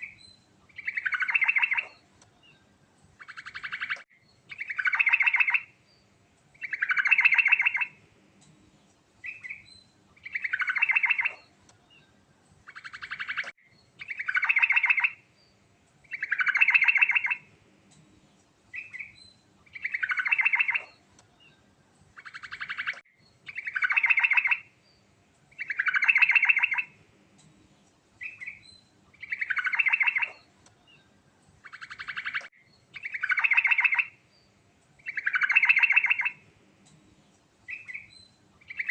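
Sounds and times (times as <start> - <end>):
bird singing bubbly phrases: 0.0 - 2.0, 3.2 - 5.7, 6.6 - 8.0, 9.3 - 11.5, 12.7 - 15.2, 16.0 - 17.5, 18.8 - 21.0, 22.2 - 24.7, 25.5 - 27.0, 28.2 - 30.5, 31.6 - 34.2, 35.0 - 36.4, 37.7 - 38.9.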